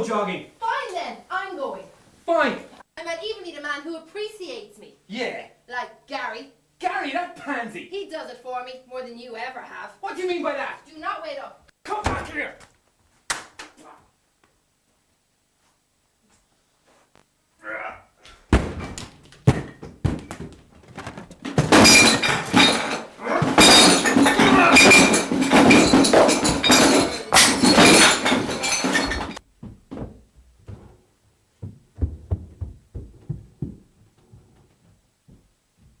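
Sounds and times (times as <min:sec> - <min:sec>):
thuds and knocks: 0:12.0 - 0:12.5, 0:18.3 - 0:36.0
clattering crashes: 0:18.5 - 0:31.0.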